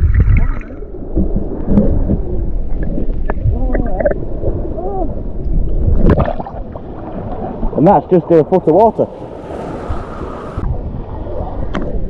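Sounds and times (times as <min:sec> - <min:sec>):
muffled underwater sloshing: 0:00.0 - 0:12.0
faint voice-like sounds: 0:03.5 - 0:05.2.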